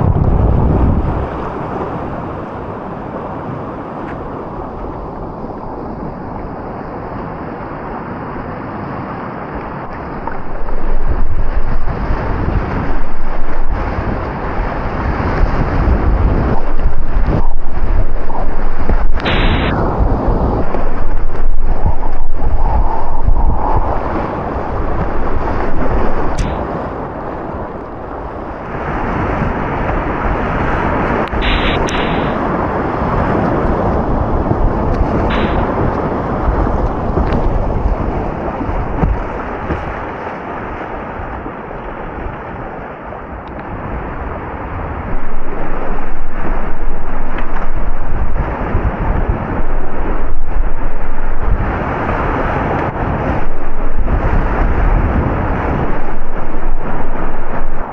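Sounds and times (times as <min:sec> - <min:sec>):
water thudding against microphone: 0:09.9 - 0:28.0, 0:31.3 - 0:40.8
whitewater rapids rushing: 0:10.0 - 0:43.3.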